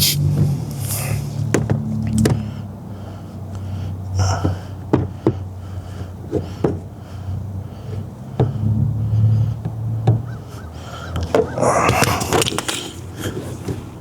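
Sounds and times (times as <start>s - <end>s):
steady low hum: 0.0s - 14.0s
sharp clicks and light knocks: 0.3s - 2.6s, 11.1s - 13.9s.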